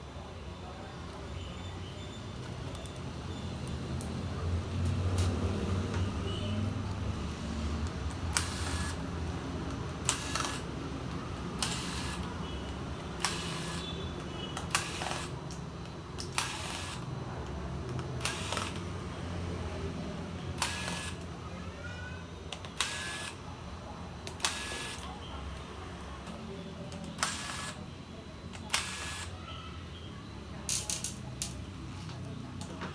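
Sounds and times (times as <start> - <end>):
sharp clicks with hiss: 14.6 - 15.3, 20.6 - 21.2, 27.2 - 27.8.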